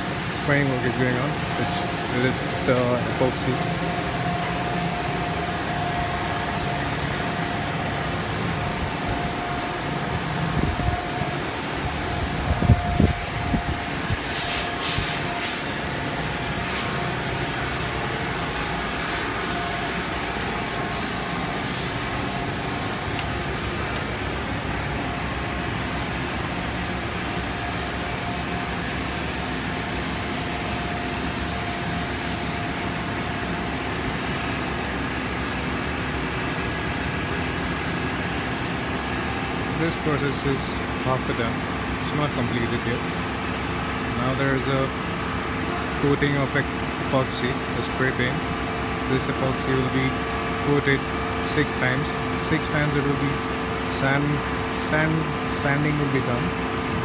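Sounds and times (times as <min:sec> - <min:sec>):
spray gun hissing: 0:00.0 - 0:24.0, 0:25.8 - 0:32.7
steady hum: 0:00.0 - 0:57.0.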